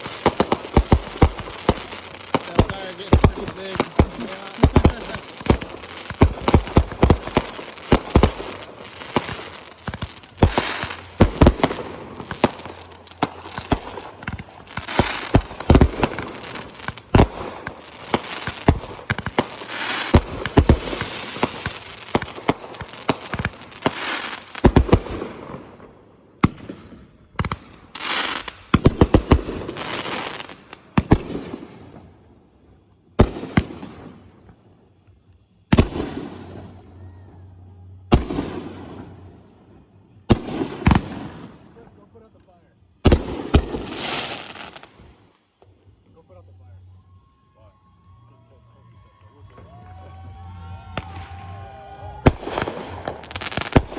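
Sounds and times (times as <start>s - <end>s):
fireworks banging: 0.0s - 32.0s, 43.0s - 45.1s, 50.7s - 53.9s
fireworks crackling: 0.0s - 36.9s, 37.8s - 53.9s.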